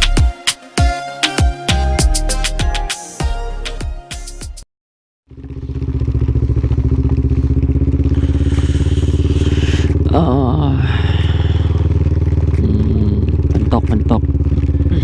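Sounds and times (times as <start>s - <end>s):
motorcycle engine running: 5.3s - 15.0s.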